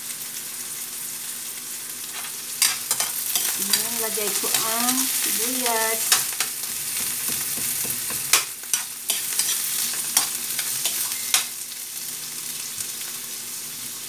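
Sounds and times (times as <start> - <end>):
onions sizzling in oil: 0.0 - 14.0
spatula scraping a wok: 2.1 - 11.5.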